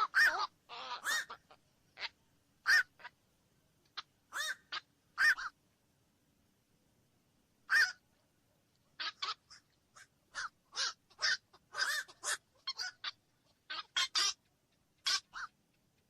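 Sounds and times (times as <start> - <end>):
heron harsh calls: 0.0 - 3.1, 4.3 - 5.6, 7.7 - 8.0, 9.0 - 14.4.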